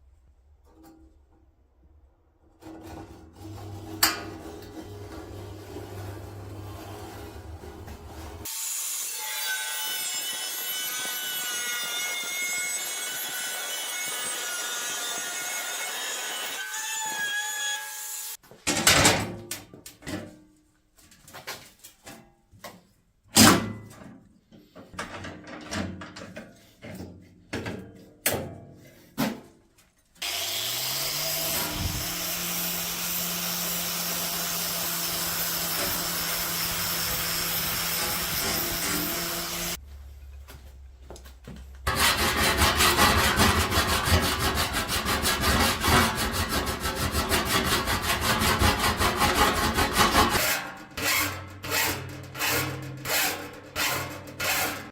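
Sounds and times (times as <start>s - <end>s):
power tool grinding steel: 3.4s - 18.4s, 30.2s - 39.8s, 41.9s - 54.9s
electric motor spinning: 30.2s - 33.8s.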